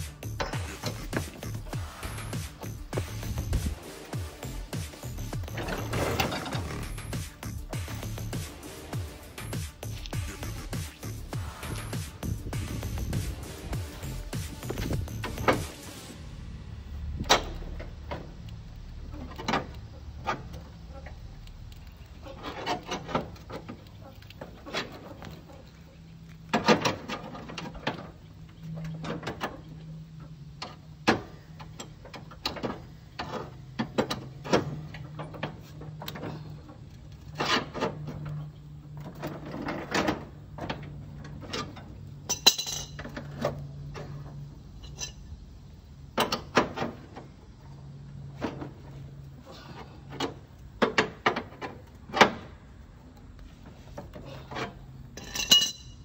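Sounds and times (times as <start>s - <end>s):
steady low hum: 0.0s - 22.2s
metal tools knocking and scraping: 0.1s - 1.8s, 30.6s - 45.4s, 54.0s - 56.0s
ringing metallic clink: 42.3s - 43.0s, 55.2s - 56.0s.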